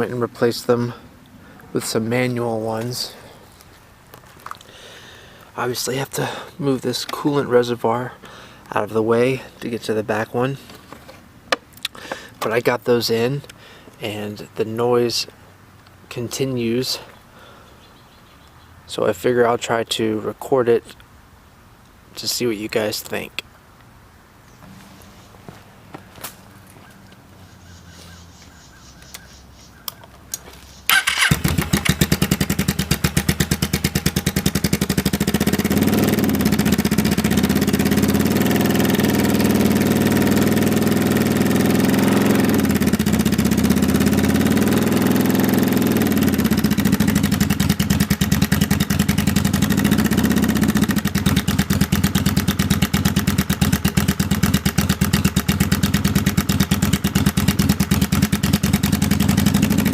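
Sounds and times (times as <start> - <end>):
motorcycle engine revving and idling: 30.8 - 59.9.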